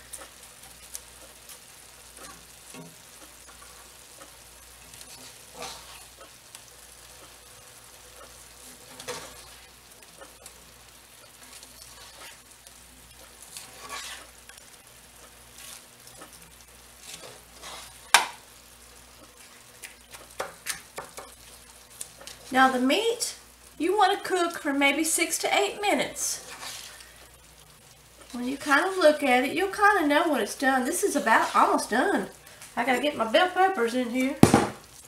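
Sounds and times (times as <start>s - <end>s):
steak and onions sizzling in skillet: 0.0s - 35.0s
utensil scraping and knocking pan: 13.6s - 14.3s.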